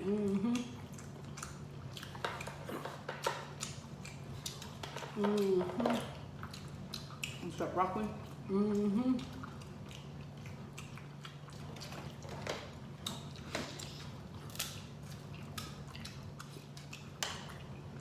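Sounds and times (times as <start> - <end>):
close-up chewing and eating: 0.0 - 18.0
small mouth clicks and crackles: 0.4 - 7.5.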